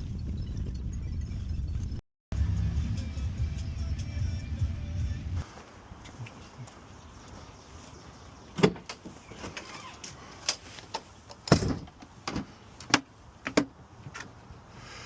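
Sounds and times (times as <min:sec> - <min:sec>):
sharp knocks and clunks: 0:08.5 - 0:09.1, 0:11.3 - 0:14.3.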